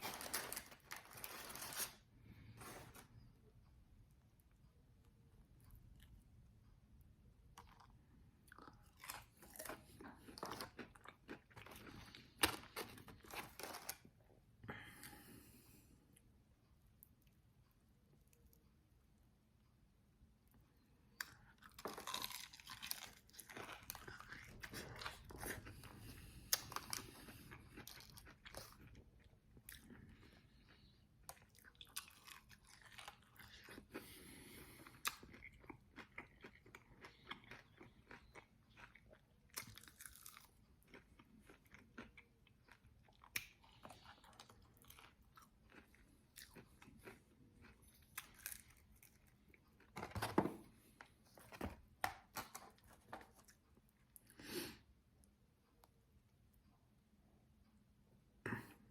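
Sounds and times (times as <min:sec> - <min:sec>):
crisp crunches of chewing chicken: 0:21.2 - 0:49.9
wet chewing: 0:30.6 - 0:49.7.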